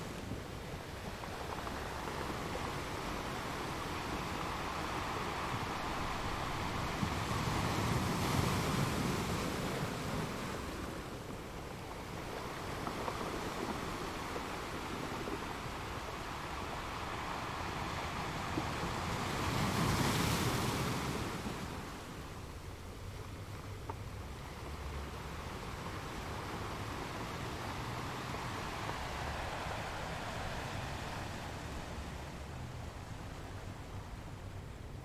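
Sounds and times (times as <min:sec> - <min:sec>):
sea waves breaking on shore: 0:00.0 - 0:35.0.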